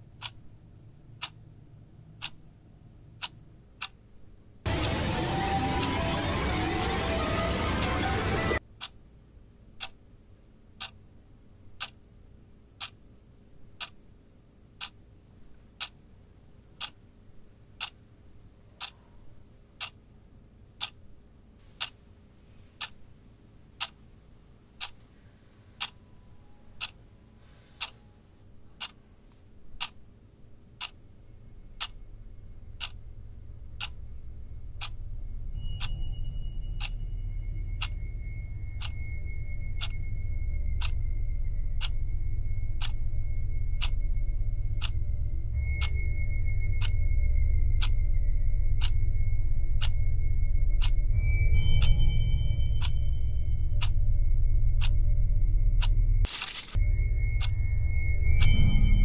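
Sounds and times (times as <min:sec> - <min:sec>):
clock ticking: 0:00.0 - 0:22.2, 0:22.8 - 0:28.1, 0:28.7 - 0:59.0
low drone: 0:04.6 - 0:08.6, 0:31.1 - 0:59.0
steady high tone: 0:04.7 - 0:08.6, 0:31.1 - 0:59.0.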